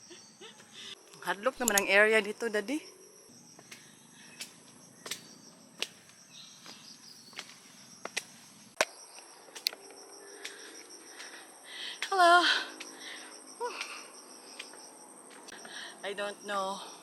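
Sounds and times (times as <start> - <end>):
crickets trilling: 0.0 - 17.0
footstep taps: 3.6 - 8.9, 14.6 - 15.5.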